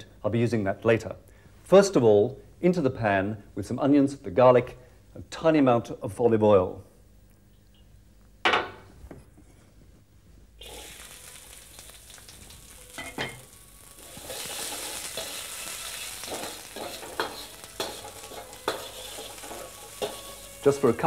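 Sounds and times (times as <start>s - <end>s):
onions sizzling in a wok: 10.5s - 21.0s
metal spatula scraping a wok: 12.6s - 21.0s.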